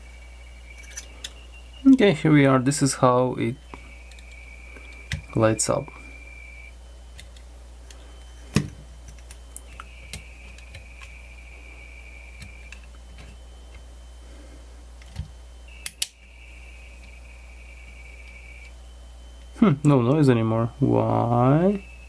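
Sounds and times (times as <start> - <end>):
faint high whine: 0.0 - 22.0
steady low hum: 0.0 - 22.0
radio controls clicking: 3.6 - 5.4, 7.1 - 11.2, 12.2 - 13.9, 15.0 - 17.2.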